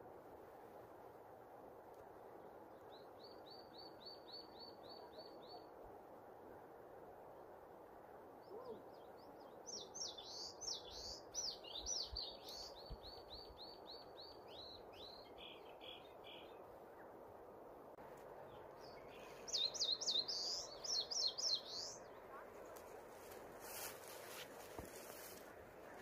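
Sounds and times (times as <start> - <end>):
songbird singing: 2.3 - 6.0, 8.3 - 17.4, 18.0 - 26.0.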